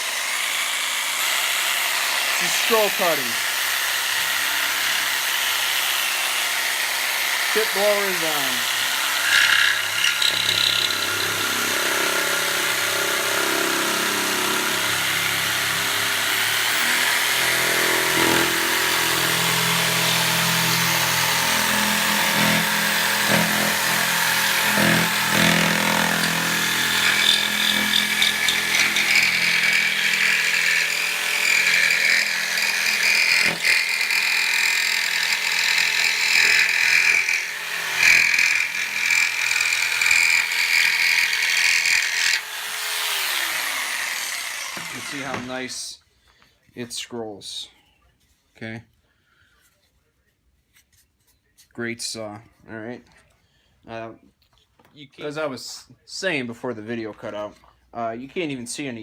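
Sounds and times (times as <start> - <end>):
jigsaw cutting wood: 0.0 - 45.7.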